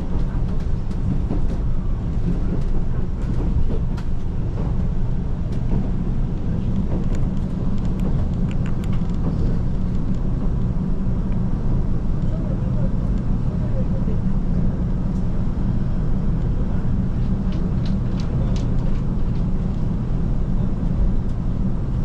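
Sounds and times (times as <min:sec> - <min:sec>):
railcar cabin rumble: 0:00.0 - 0:22.0
light clicks and rattles: 0:05.5 - 0:10.5, 0:17.2 - 0:19.8.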